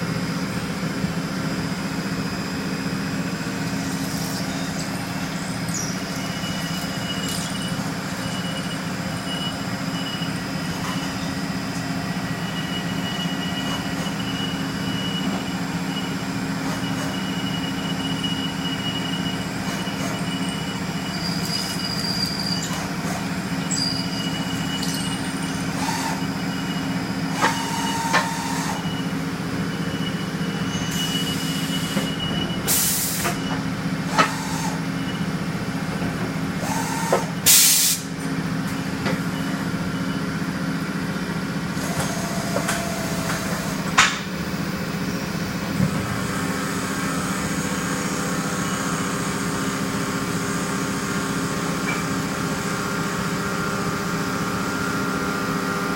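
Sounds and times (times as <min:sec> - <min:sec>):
short machine tones: 0:03.7 - 0:11.3, 0:16.9 - 0:29.1
air hiss: 0:37.5 - 0:38.1.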